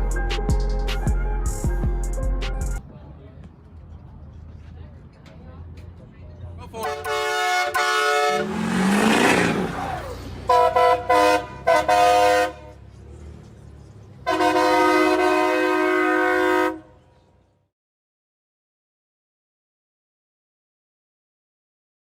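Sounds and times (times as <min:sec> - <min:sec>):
vehicle horns honking: 0:06.7 - 0:12.8, 0:14.2 - 0:17.1.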